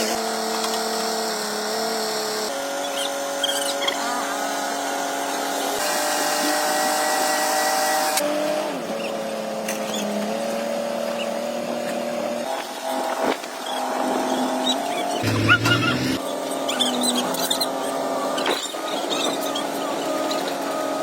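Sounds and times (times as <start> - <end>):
engine running: 8.2 - 21.0.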